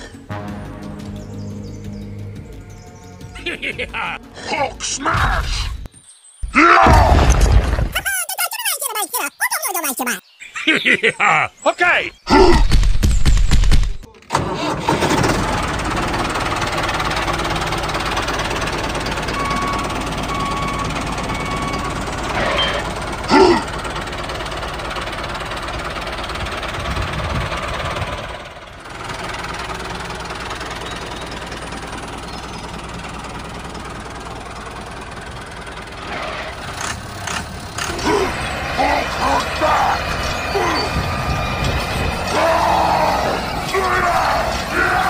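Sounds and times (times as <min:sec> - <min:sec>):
diesel tractor engine chugging: 0:00.0 - 0:04.5, 0:14.3 - 0:45.0.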